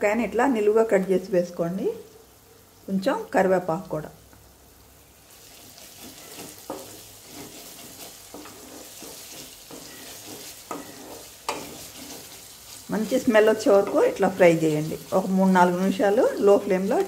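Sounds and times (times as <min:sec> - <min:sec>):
paste sizzling in hot oil: 0:04.8 - 0:17.0
wooden spatula scraping a pan: 0:05.3 - 0:17.0.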